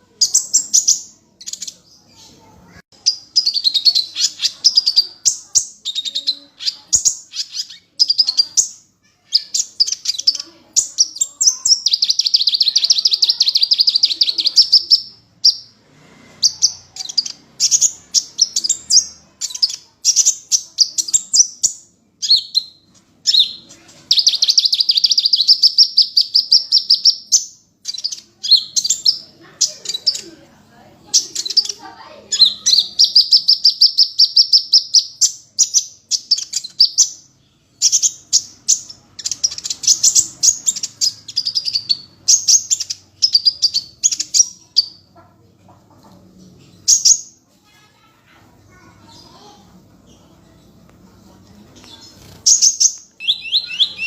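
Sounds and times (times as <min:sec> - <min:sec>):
songbird singing: 0:00.0 - 0:15.8, 0:16.4 - 0:45.3, 0:51.7 - 0:54.0
fast rattling bird trill: 0:52.1 - 0:54.0.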